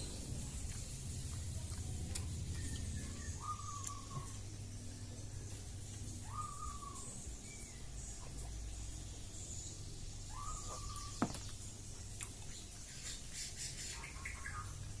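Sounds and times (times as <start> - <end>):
faint bird chirps: 0.0 - 11.7
mouth eating sounds and clicks: 0.5 - 4.4, 12.1 - 12.6
bird calling: 2.5 - 4.4, 6.2 - 8.3, 10.3 - 11.6.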